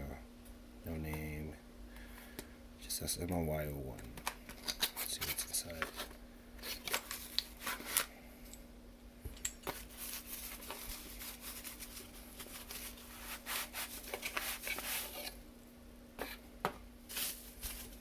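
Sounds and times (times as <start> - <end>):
faint steady hum: 0.0 - 18.0
packaging rustling and tearing: 4.5 - 8.1, 9.7 - 15.4, 17.1 - 18.0.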